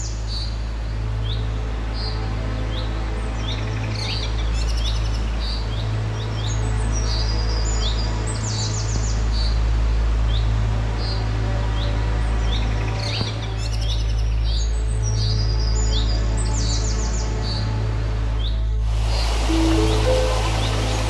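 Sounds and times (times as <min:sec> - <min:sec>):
steady low rumble: 0:18.7 - 0:21.0
birds trilling and buzzing: 0:18.9 - 0:21.0
bird repeating rising chirp: 0:19.0 - 0:21.0.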